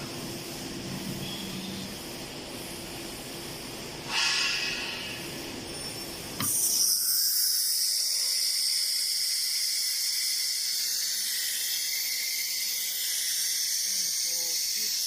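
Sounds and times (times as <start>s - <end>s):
cnc router hissing and whining: 4.5s - 15.0s.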